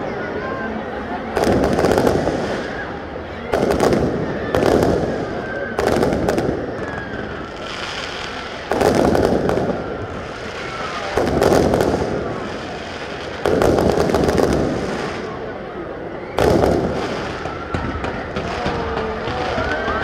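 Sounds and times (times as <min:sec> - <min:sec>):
crackling firework tails: 0:00.0 - 0:20.0
fireworks booming: 0:01.2 - 0:20.0.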